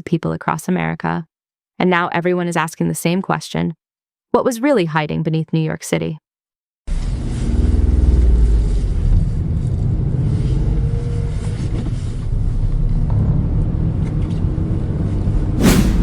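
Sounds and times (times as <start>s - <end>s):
loud whooshing sweep: 15.6s - 16.0s.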